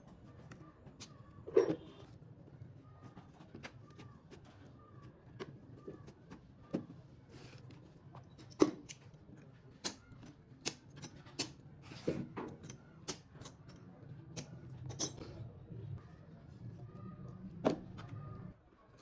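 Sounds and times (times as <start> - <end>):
faint low hum: 13.6 - 19.0.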